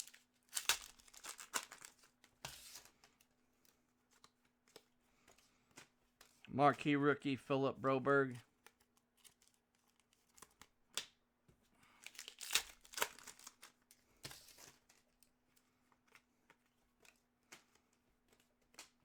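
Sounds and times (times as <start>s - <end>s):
wrapper crinkling and tearing: 0.0s - 3.0s, 12.0s - 15.1s.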